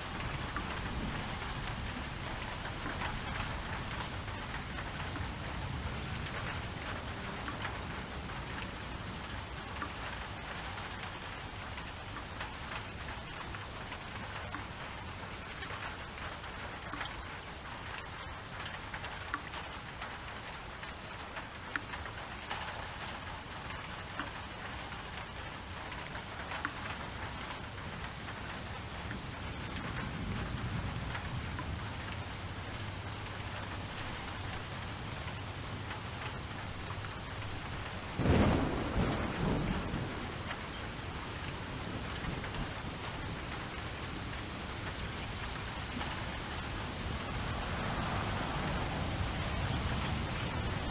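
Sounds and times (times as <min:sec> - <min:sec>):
steady rain falling: 0:00.0 - 0:50.9
low thunder rumble: 0:29.9 - 0:44.5
thunderclap: 0:37.8 - 0:43.4.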